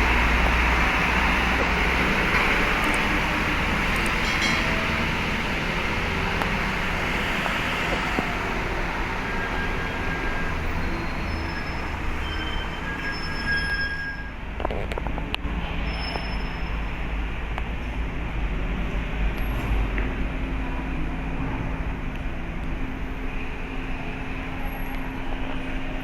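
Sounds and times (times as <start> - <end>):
diesel engines rumbling: 0.0 - 26.0
short high squeals: 9.4 - 14.4.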